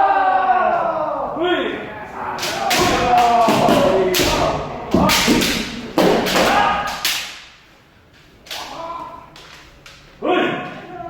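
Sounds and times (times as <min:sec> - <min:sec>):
people shouting: 0:00.0 - 0:07.4, 0:08.6 - 0:09.4
bamboo swords striking armour: 0:02.4 - 0:07.5
stamping footwork: 0:02.6 - 0:07.1.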